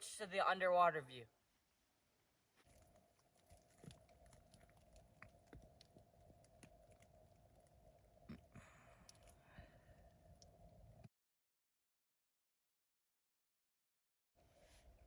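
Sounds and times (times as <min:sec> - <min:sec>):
faint steady hum: 0:01.6 - 0:11.1
faint ticks and clicks: 0:02.6 - 0:11.1.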